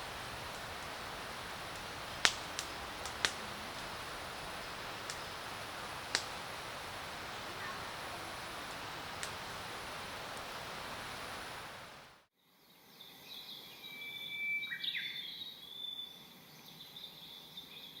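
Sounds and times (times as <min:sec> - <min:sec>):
bird whistling calls: 0:00.0 - 0:11.8
outdoor noise: 0:00.0 - 0:13.5.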